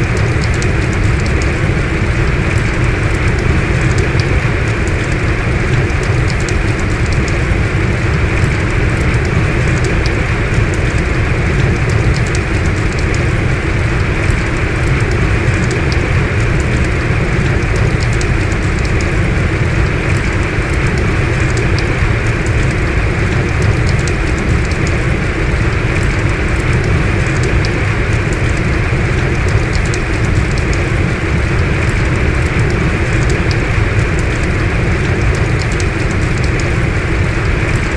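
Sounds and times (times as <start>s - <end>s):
heavy rain falling: 0.0s - 37.9s
single raindrop ticks: 0.0s - 37.9s.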